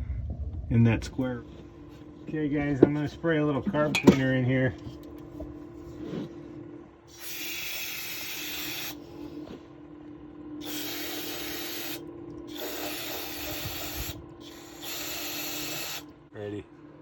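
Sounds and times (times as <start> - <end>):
aerosol can spraying hiss: 7.2 - 9.0, 10.6 - 12.0, 12.6 - 16.0.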